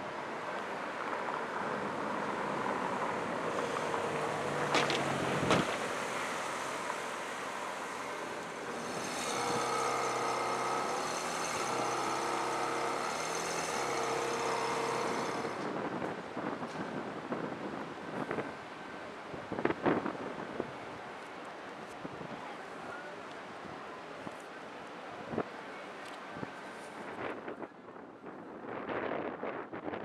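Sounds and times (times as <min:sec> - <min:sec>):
car engine at low speed: 0:00.0 - 0:16.8.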